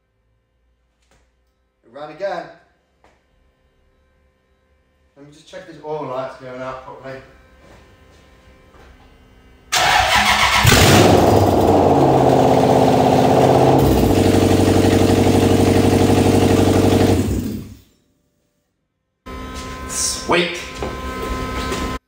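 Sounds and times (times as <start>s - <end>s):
engine idling: 9.7s - 17.8s
engine cranking and starting: 9.7s - 17.9s.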